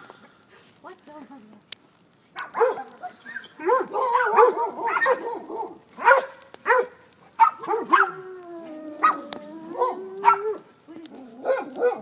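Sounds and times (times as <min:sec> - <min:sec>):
dogs barking: 0:02.4 - 0:08.2, 0:08.9 - 0:10.7, 0:11.4 - 0:12.0.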